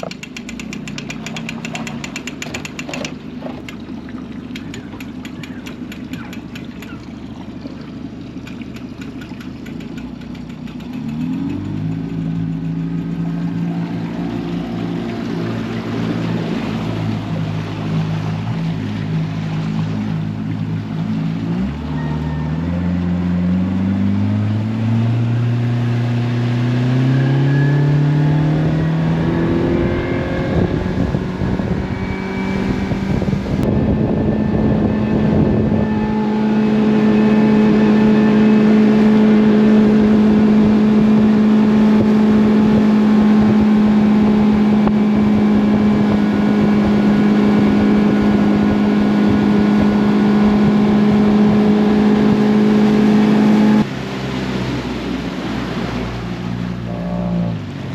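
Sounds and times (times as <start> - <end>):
outboard motor accelerating: 0.0 - 57.9
water noise: 0.0 - 57.9
wind noise: 29.2 - 53.9.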